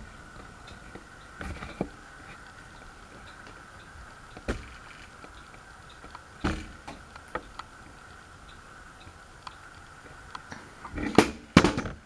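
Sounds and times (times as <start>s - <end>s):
ceiling fan humming: 0.0s - 12.0s
sharp knocks: 4.4s - 5.3s, 6.4s - 7.5s.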